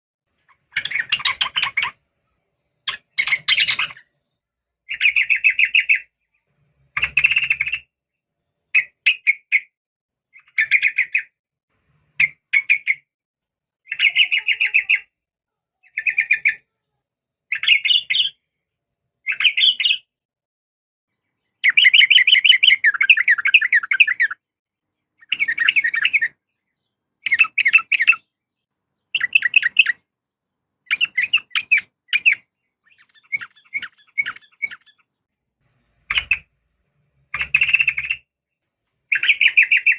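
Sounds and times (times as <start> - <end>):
bulbul chattering calls: 21.6 - 24.4, 27.2 - 28.2, 29.1 - 30.0, 30.9 - 35.0.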